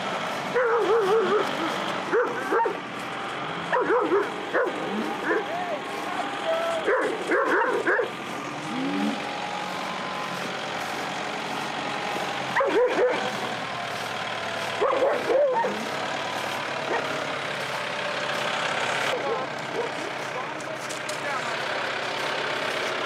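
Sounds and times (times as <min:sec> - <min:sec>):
engine running: 0:00.0 - 0:23.0
dogs barking: 0:00.5 - 0:02.9, 0:03.6 - 0:05.6, 0:06.3 - 0:09.3, 0:10.9 - 0:17.4, 0:19.1 - 0:20.3.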